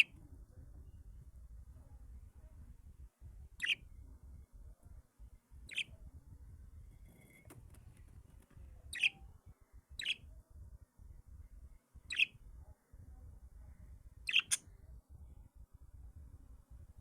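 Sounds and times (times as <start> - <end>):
bird chirping: 3.6 - 3.9, 5.6 - 6.0, 8.8 - 9.3, 9.9 - 10.3, 11.7 - 12.4, 14.2 - 14.7.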